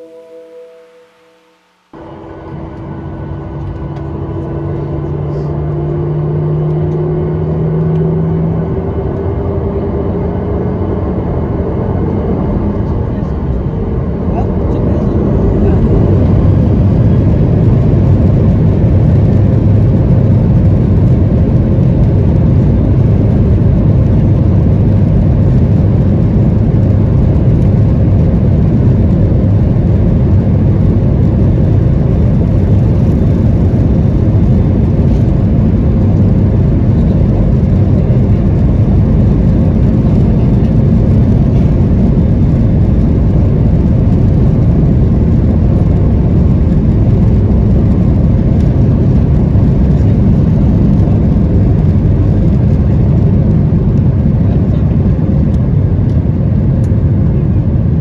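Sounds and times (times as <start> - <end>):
faint steady hum: 0.0 - 6.8
airplane engines roaring in cabin: 0.0 - 58.0.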